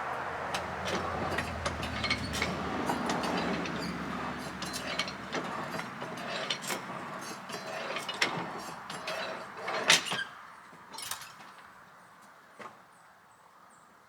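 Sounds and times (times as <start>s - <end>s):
sawmill carriage rumbling on rail: 0.0s - 11.7s
metal clanks: 0.8s - 10.2s.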